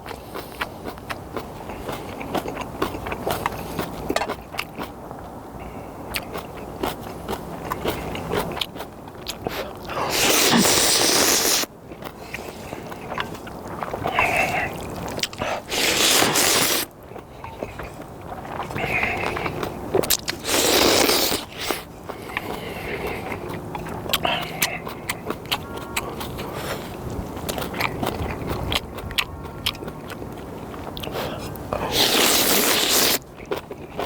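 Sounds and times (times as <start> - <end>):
chewing with wet smacks: 0.0 - 34.0
loud noodle slurps: 10.0 - 11.7, 14.0 - 16.9, 20.1 - 21.8, 31.9 - 33.2.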